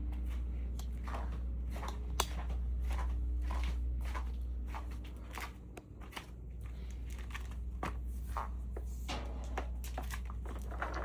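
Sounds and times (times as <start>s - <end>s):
steady low hum: 0.0s - 11.0s
footsteps: 0.1s - 8.6s.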